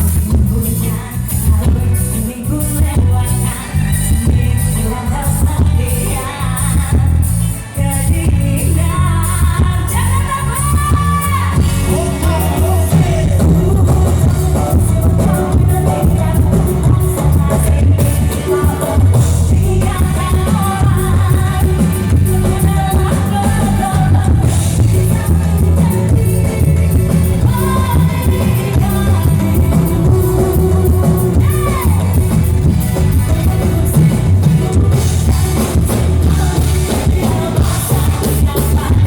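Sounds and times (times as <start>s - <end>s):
live band music: 0.0s - 39.0s
woman singing: 0.0s - 39.0s
heavy bass beat: 10.6s - 39.0s.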